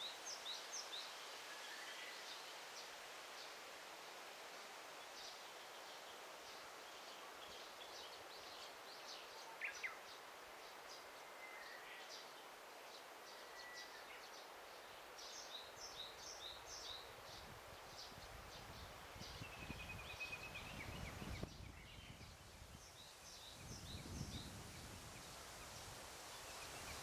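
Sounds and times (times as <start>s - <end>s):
small birds chirping: 4.9s - 27.0s.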